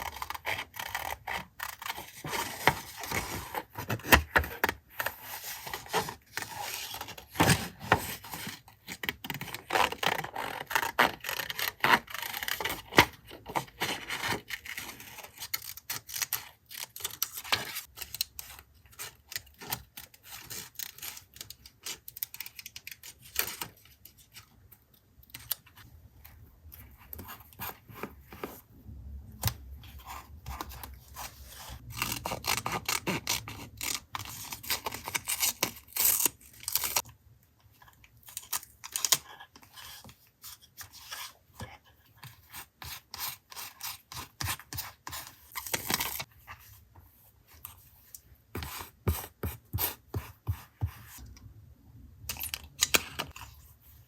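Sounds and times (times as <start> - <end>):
taps and scraping strokes: 39.6 - 51.4.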